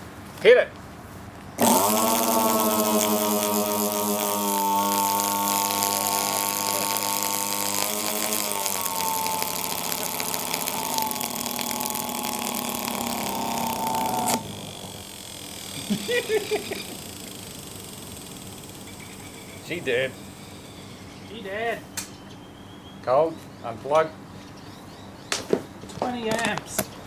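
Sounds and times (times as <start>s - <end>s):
shop vacuum motor whining: 1.6s - 21.1s.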